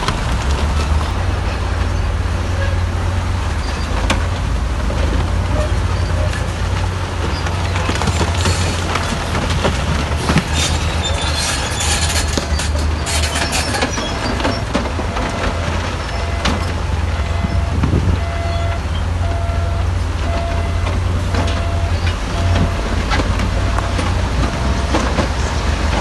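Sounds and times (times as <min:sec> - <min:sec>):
knocks and clatter: 0:00.0 - 0:18.9, 0:20.0 - 0:26.0
diesel machinery engine rumble: 0:00.0 - 0:26.0
short beeps: 0:17.2 - 0:22.8.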